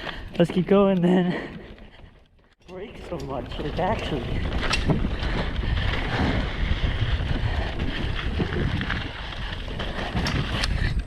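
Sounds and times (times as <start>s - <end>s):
bike rattles: 0.0s - 11.0s
tyres rumbling on dirt: 2.8s - 10.6s
wind on microphone: 3.3s - 11.0s.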